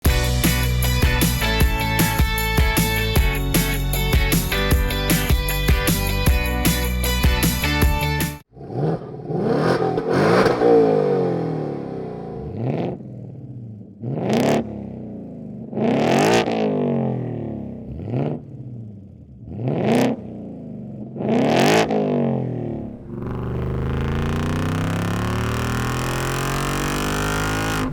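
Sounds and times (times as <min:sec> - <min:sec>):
music: 0:00.0 - 0:08.4
car engine revving: 0:08.6 - 0:13.4, 0:22.8 - 0:27.9.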